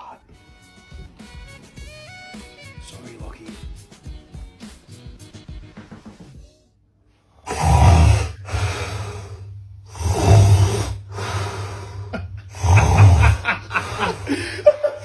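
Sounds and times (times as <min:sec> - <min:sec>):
man snoring loudly: 0:07.4 - 0:15.0.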